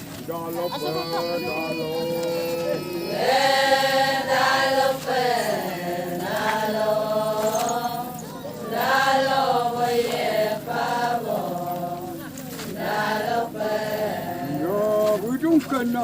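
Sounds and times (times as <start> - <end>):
person chanting long held notes: 0.6 - 12.2.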